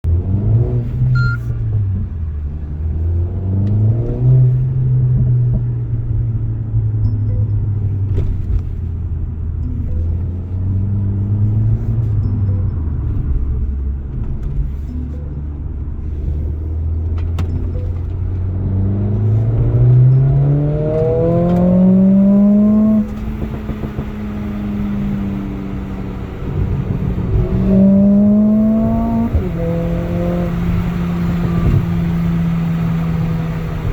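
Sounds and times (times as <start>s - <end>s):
car engine revving: 10.0s - 33.9s.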